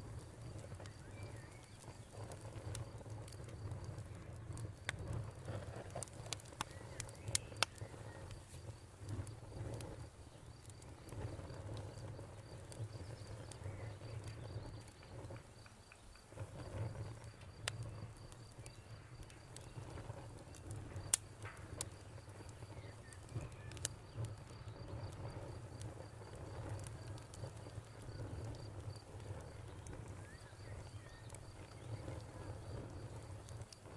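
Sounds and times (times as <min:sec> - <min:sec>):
campfire crackling and popping: 0:00.0 - 0:33.9
cricket chirping: 0:06.6 - 0:33.6.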